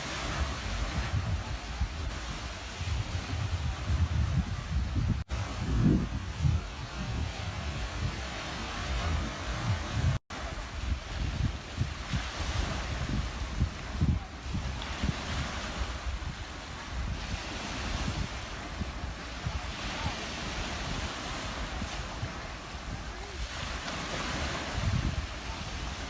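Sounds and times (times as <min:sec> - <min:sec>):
ocean waves breaking on beach: 0:00.0 - 0:26.0
wind buffeting microphone: 0:00.0 - 0:26.0.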